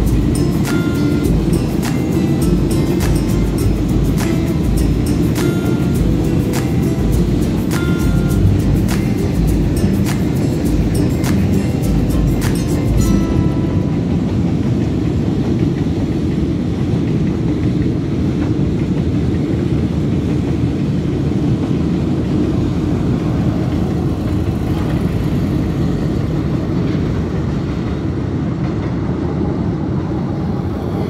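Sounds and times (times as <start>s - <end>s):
freight train rumbling past: 0.0s - 31.0s.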